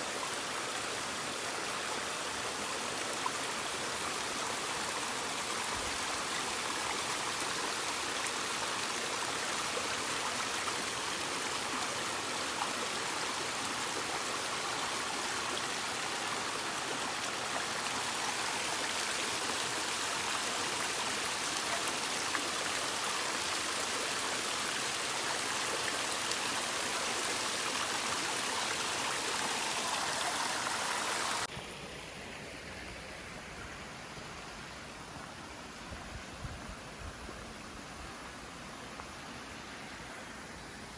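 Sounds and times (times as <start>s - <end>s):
water rushing: 0.0s - 32.7s
quiet hiss: 0.0s - 40.9s.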